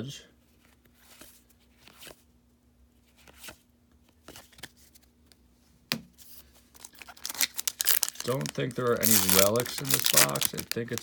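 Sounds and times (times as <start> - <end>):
cards flipped and slid: 6.8 - 11.0.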